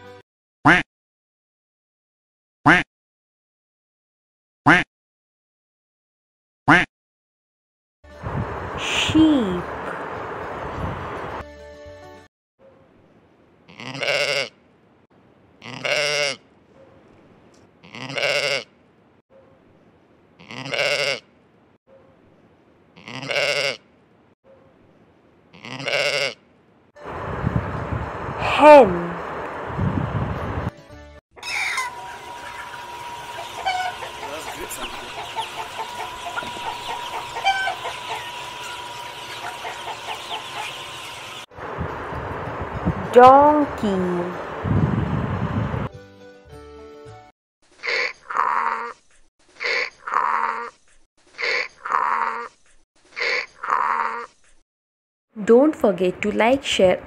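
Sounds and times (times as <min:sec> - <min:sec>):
sheep bleating: 0:13.7 - 0:14.5, 0:15.6 - 0:16.4, 0:17.8 - 0:18.7, 0:20.4 - 0:21.2, 0:23.0 - 0:23.8, 0:25.5 - 0:26.4
chickens clucking: 0:31.4 - 0:41.5
steady high hum: 0:31.8 - 0:42.9.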